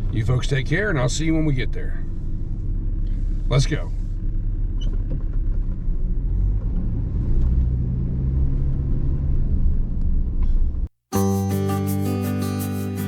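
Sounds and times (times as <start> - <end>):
truck engine rumbling: 0.0 - 10.9.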